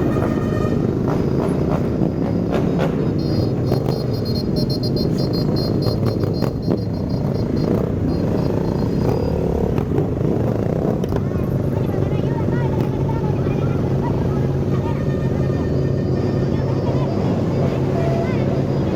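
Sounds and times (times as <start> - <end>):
motorcycle engines rumbling: 0.0 - 18.9
short high beeps: 1.2 - 9.8.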